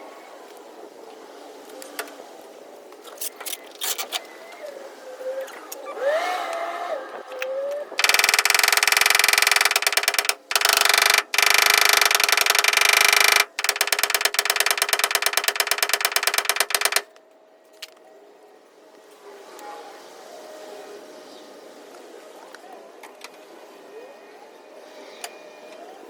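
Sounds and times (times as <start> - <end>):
power tool rattling clatter: 8.0 - 17.1.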